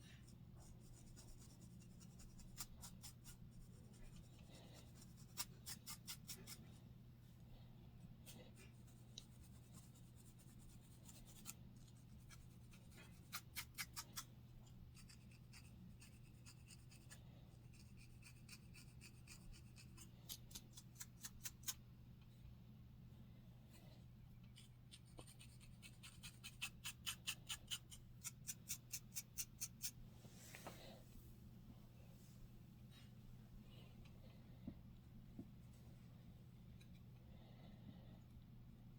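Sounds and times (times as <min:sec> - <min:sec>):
scratching on a scalp: 0:00.0 - 0:06.8, 0:08.2 - 0:14.3, 0:14.9 - 0:21.8, 0:24.6 - 0:30.7.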